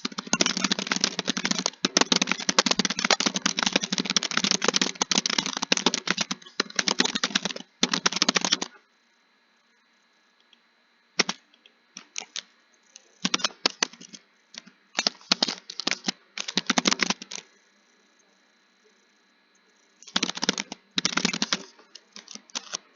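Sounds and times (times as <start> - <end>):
keyboard typing clicks: 0.0 - 8.7, 12.0 - 17.4, 20.0 - 22.8.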